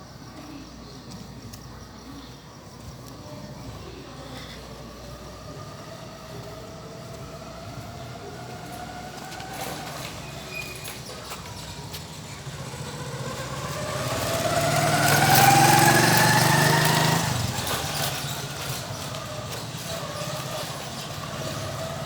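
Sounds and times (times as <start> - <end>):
motorcycle engine passing by: 3.2 - 22.0.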